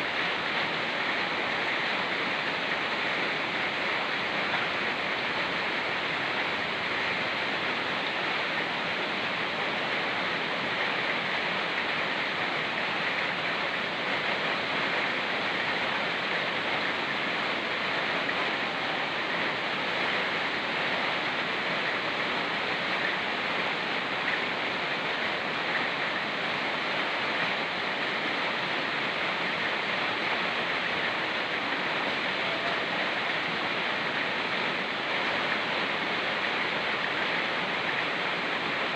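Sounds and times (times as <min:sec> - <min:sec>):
mountain river rushing: 0:00.0 - 0:38.9
rain falling: 0:00.0 - 0:38.9.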